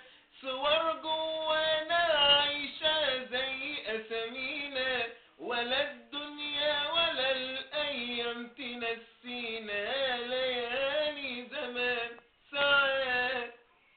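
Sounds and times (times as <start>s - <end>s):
man breathing: 0.0s - 0.4s, 5.1s - 5.4s
man singing unaccompanied: 0.0s - 13.7s.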